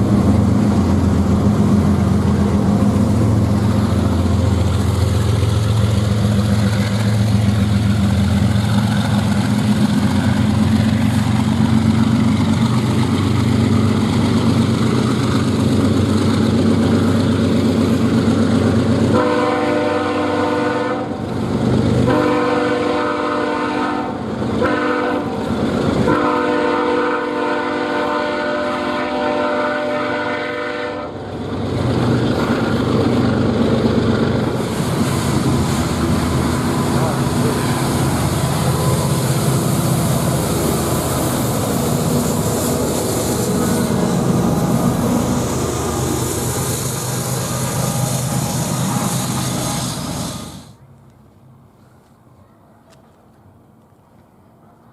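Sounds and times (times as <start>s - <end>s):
locomotive engines rumbling: 0.0s - 52.2s
train air horn blasts: 19.1s - 21.2s, 22.1s - 25.4s, 26.0s - 31.2s, 48.0s - 50.8s.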